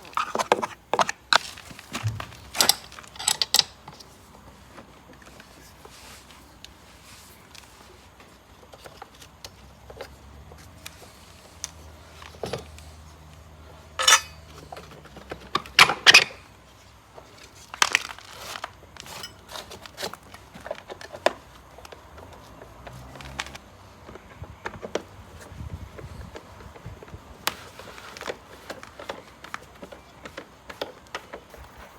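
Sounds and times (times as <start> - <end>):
metal parts rattling: 2.0 - 3.8, 14.0 - 14.4
tools clicking and clinking: 2.0 - 4.0, 14.0 - 14.6.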